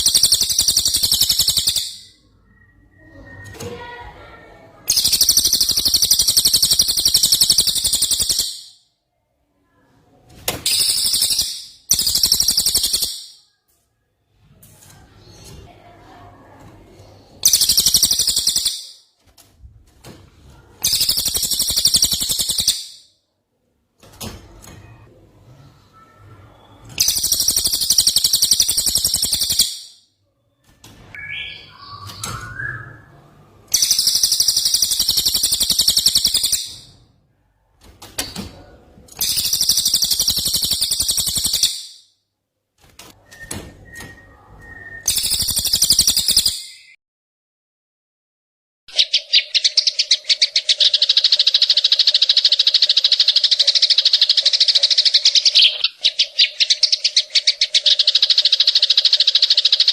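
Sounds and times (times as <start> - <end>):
bird singing harsh rapid phrases: 0.0 - 8.8, 10.6 - 13.5, 17.0 - 19.0, 20.5 - 23.1, 26.0 - 30.6, 31.2 - 37.0, 39.2 - 42.0, 43.4 - 47.0, 48.9 - 59.9
soft bird calls: 24.8 - 37.0, 48.9 - 59.9.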